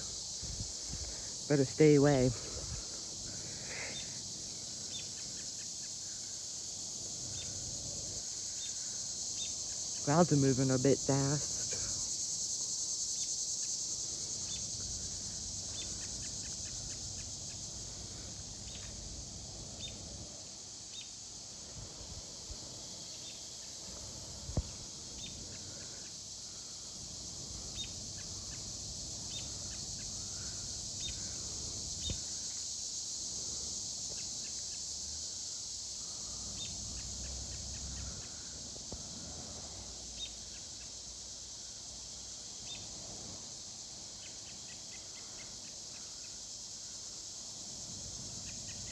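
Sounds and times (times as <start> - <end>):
wind rumble on microphone: 0.0 - 1.2, 2.4 - 2.9, 21.7 - 22.6
cicadas droning: 0.0 - 48.9.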